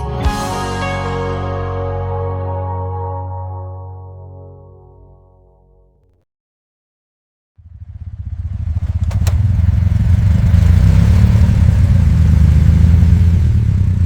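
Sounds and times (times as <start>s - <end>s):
off-road vehicle engine rumble: 7.6s - 14.0s
sharp clicks: 9.1s - 9.4s.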